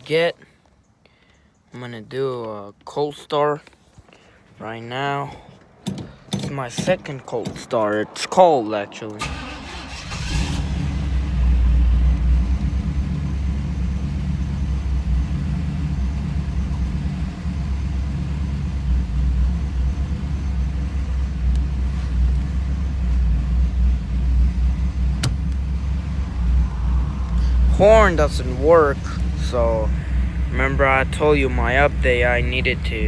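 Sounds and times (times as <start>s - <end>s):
car engine idling: 9.1s - 33.0s.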